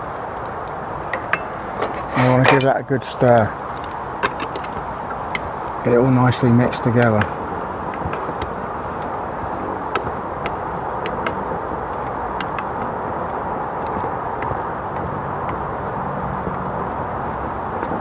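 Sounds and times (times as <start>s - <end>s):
steady rushing noise: 0.0s - 18.0s
clicks and scrapes against pan: 1.0s - 4.9s.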